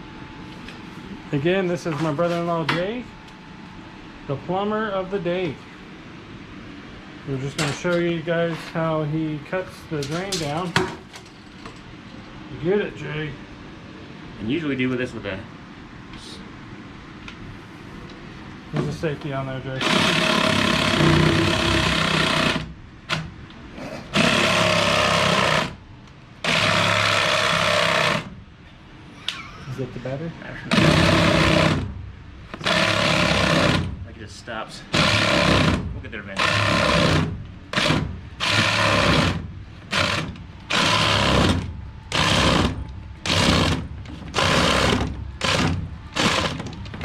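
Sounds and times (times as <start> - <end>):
cordless power saw cutting pipe: 19.8 - 22.7, 24.1 - 25.8, 26.4 - 28.3, 30.7 - 31.8, 32.6 - 33.9, 34.9 - 35.8, 36.4 - 46.6.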